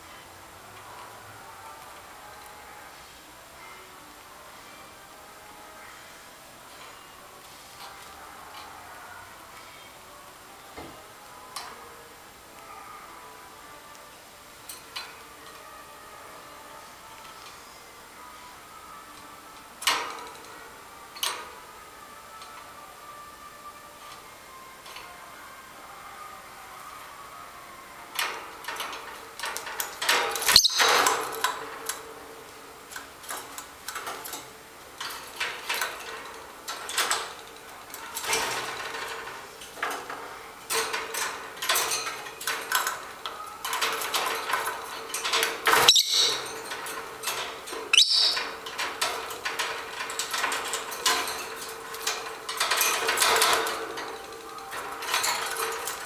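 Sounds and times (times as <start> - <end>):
bird squeaks: 30.5 - 31.0, 45.8 - 46.4, 47.9 - 48.5.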